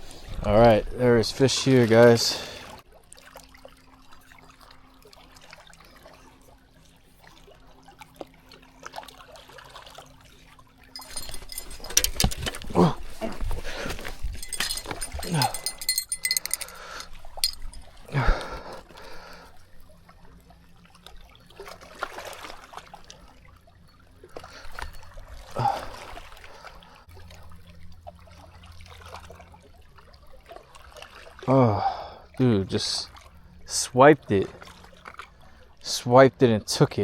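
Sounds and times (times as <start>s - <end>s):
water splashing and trickling: 1.0s - 36.8s.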